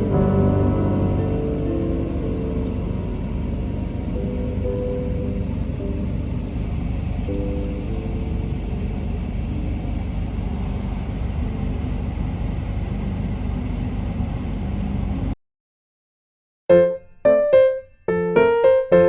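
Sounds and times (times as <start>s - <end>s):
piano note: 0.0s - 10.0s, 16.7s - 19.0s
low rumbling noise: 0.0s - 15.4s.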